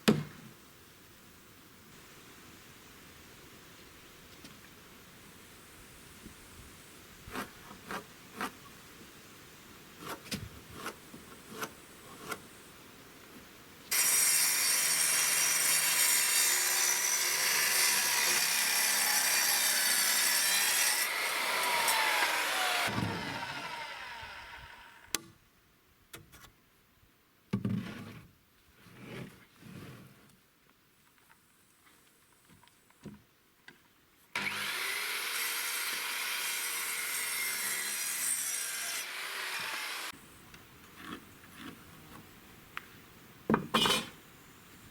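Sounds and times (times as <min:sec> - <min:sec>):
power saw cutting wood: 0:13.9 - 0:25.0, 0:34.4 - 0:40.2.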